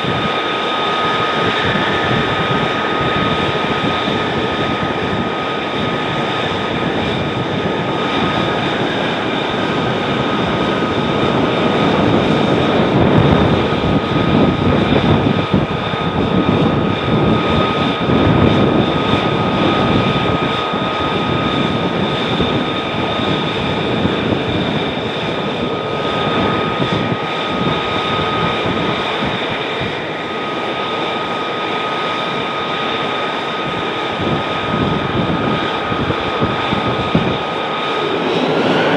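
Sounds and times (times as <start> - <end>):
jet engine roaring and whining: 0.0 - 38.9.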